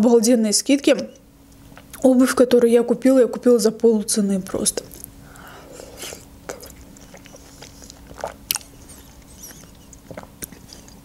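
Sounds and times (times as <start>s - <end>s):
woman chewing juicy fruit: 4.9s - 11.0s.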